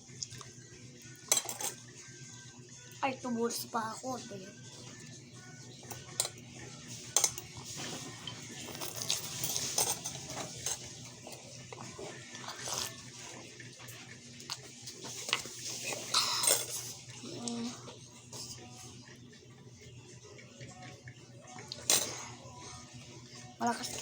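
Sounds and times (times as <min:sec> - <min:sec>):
utensil clinking against a bowl: 0:01.2 - 0:01.8, 0:07.0 - 0:12.4, 0:14.9 - 0:17.2.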